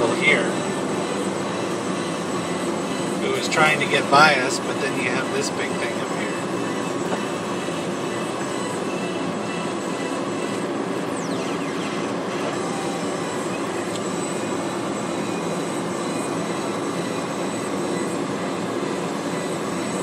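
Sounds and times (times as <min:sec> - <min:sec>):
road and tyre noise inside car: 0:00.0 - 0:20.0.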